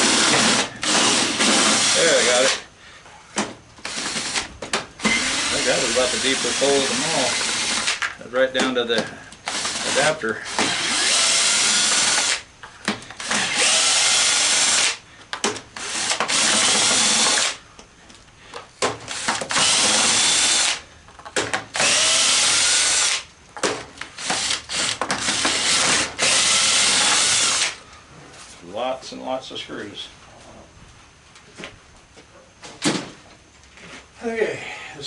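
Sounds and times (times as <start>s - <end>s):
power drill backing out screws: 9.5s - 12.4s.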